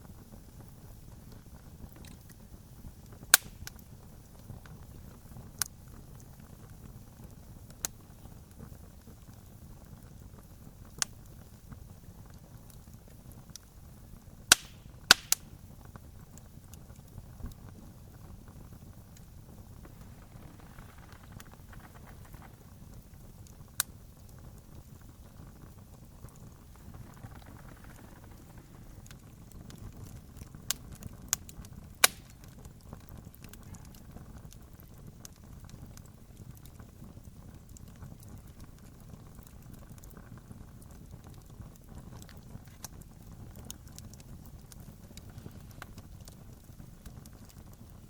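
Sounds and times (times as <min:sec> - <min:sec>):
campfire crackling: 0:00.0 - 0:48.0
low even rumble: 0:17.4 - 0:30.7.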